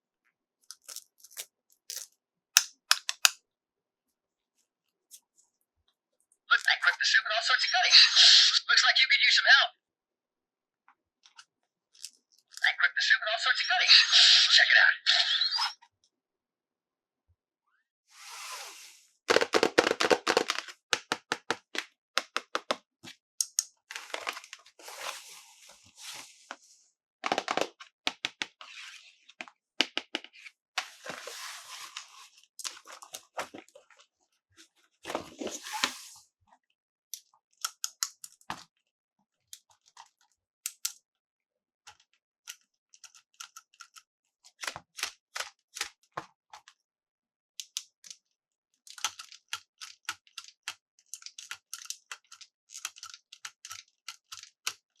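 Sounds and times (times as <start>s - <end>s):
plastic packaging crinkling: 0.7s - 2.0s
plastic clicks and taps: 2.6s - 3.4s.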